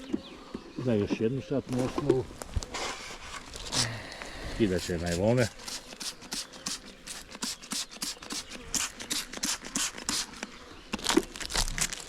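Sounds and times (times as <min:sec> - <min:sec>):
plastic wrapping crinkling: 0:10.9 - 0:12.0.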